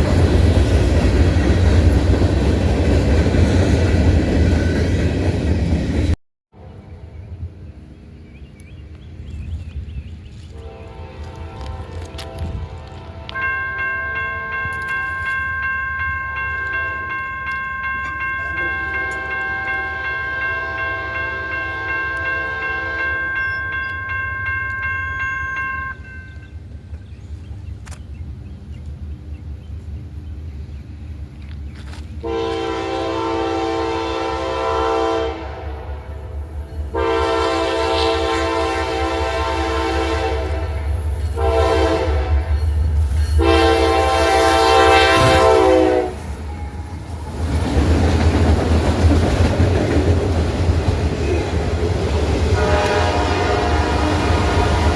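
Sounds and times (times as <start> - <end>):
train rumbling: 0.0 - 54.9
locomotive horn blasts: 10.6 - 15.4, 18.4 - 26.1, 32.2 - 42.7, 43.3 - 46.8, 52.5 - 54.9.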